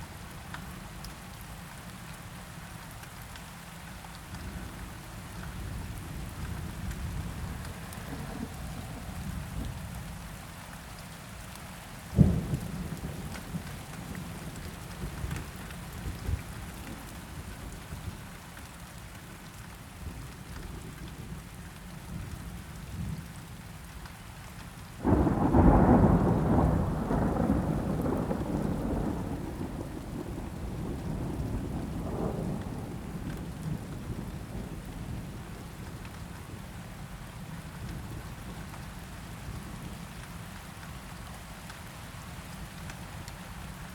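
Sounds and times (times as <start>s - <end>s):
steady rain: 0.0s - 43.9s
thunder rumbling: 6.6s - 9.9s, 25.0s - 35.4s.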